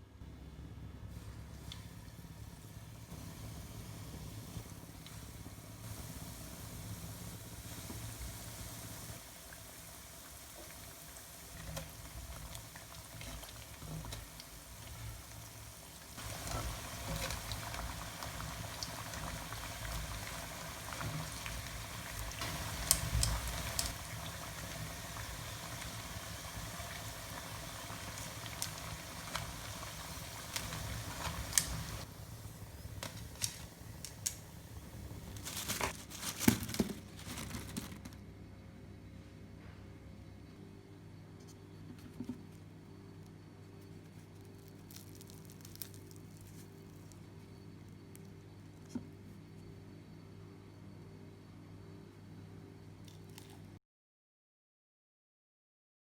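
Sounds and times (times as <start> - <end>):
fritters deep-frying in oil: 1.6 - 35.4.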